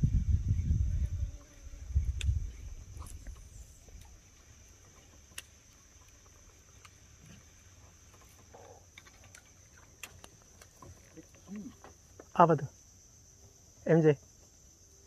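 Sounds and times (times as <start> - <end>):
high-pitched insect drone: 0.0 - 7.7.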